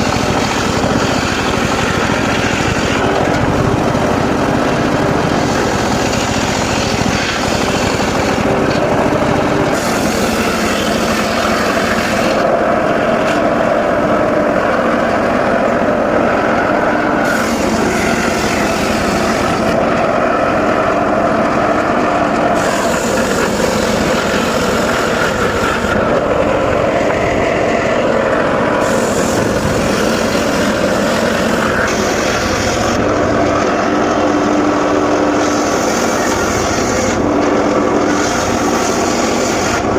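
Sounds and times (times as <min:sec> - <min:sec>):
saw blade hiss cutting wood: 0:00.0 - 0:08.9, 0:09.6 - 0:12.6, 0:17.2 - 0:19.8, 0:22.5 - 0:26.3, 0:28.8 - 0:33.0, 0:35.2 - 0:37.3, 0:38.0 - 0:39.9
engine-driven sawmill running: 0:00.0 - 0:39.9.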